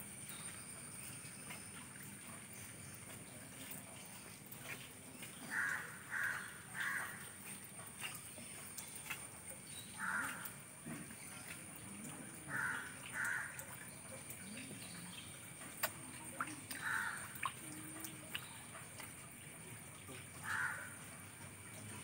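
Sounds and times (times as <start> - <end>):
bird cawing harshly: 20.4 - 20.9.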